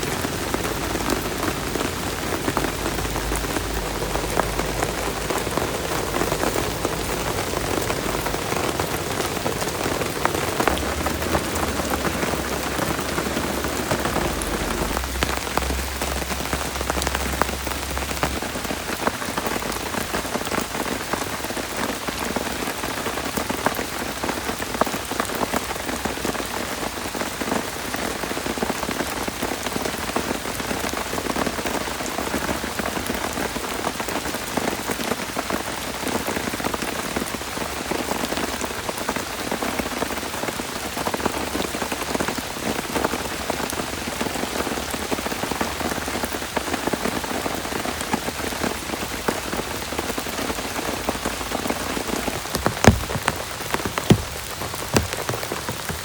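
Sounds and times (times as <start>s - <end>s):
heavy rain on a surface: 0.0s - 56.0s
sharp knocks: 52.4s - 56.0s.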